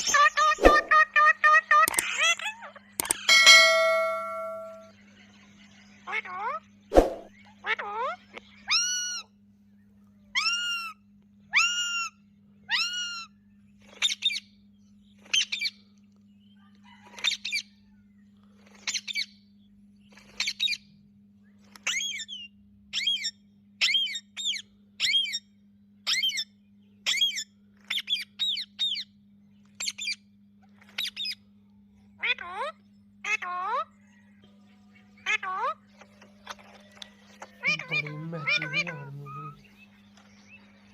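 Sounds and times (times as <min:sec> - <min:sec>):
parakeet squawking: 0:00.0 - 0:02.4, 0:37.5 - 0:39.7.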